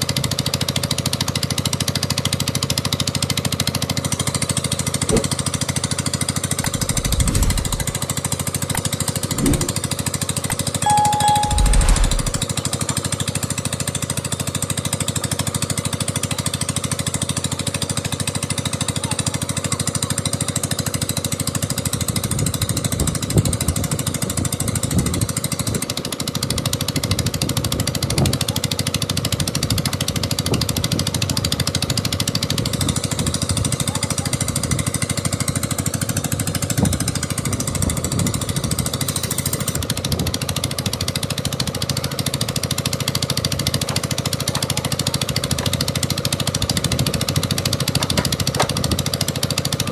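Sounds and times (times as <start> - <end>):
construction machinery hammering rattle: 6.6 - 8.1, 8.7 - 10.2, 10.8 - 12.4, 42.8 - 49.8.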